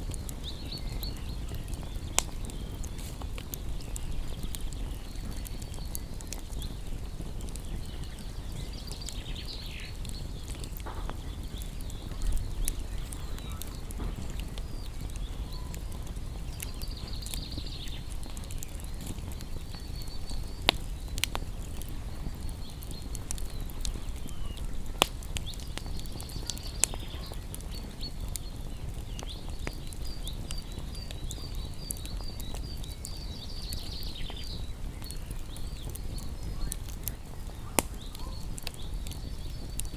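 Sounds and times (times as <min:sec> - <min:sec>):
small birds chirping: 0:00.0 - 0:39.9
wood fire crackling and popping: 0:00.0 - 0:39.9.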